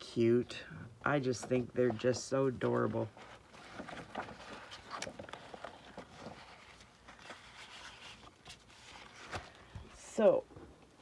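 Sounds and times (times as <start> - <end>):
paper rustling: 1.2 - 10.0.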